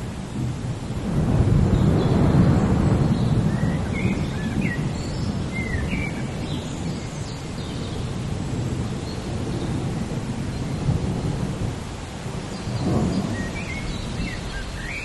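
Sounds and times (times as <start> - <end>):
low thunder rumble: 0.0 - 15.0
steady rain: 0.0 - 15.0
bird chirping: 12.5 - 15.0.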